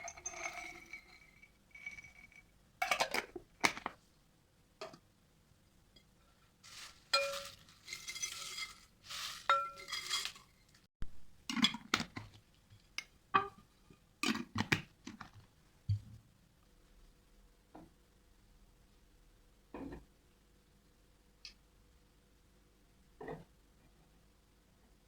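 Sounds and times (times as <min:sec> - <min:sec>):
dishes scraping: 0:00.0 - 0:03.4, 0:07.1 - 0:10.7.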